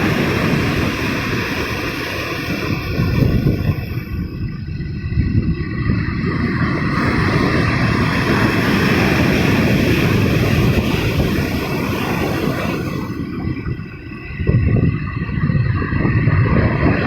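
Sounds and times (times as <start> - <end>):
ocean wave surging up shore: 0.0 - 17.0.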